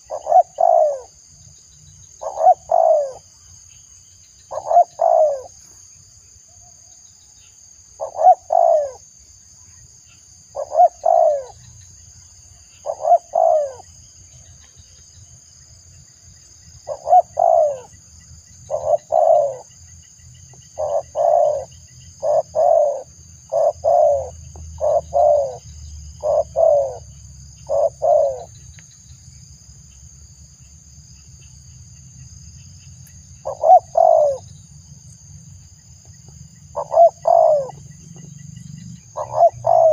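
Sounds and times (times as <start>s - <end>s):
dove cooing: 0.0s - 1.2s, 2.2s - 3.2s, 4.5s - 5.6s, 8.0s - 9.0s, 10.5s - 11.6s, 12.8s - 13.9s, 16.8s - 17.9s, 18.7s - 19.7s, 20.8s - 25.6s, 26.2s - 28.5s, 33.4s - 34.5s, 36.7s - 37.8s, 39.2s - 39.9s.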